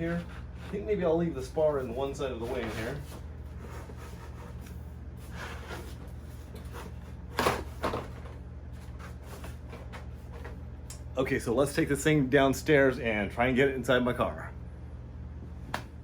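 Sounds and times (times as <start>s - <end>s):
foam rubbing and handling: 0.0s - 7.3s, 8.7s - 10.6s.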